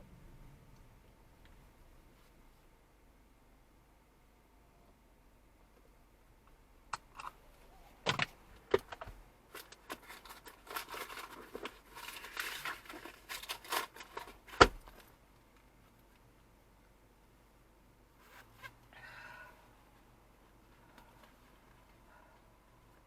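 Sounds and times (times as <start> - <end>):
small objects clicking and rattling: 8.8 - 14.5.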